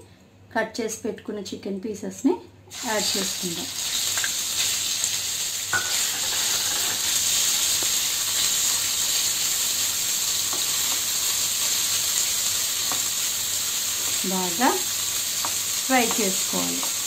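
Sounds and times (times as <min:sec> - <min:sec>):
chicken sizzling in hot oil: 0:02.7 - 0:17.0
wooden spatula tapping: 0:15.4 - 0:17.0.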